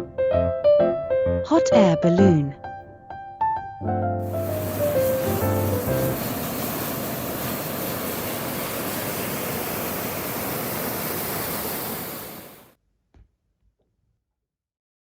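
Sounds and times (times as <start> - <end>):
steady rushing noise: 4.2 - 12.8.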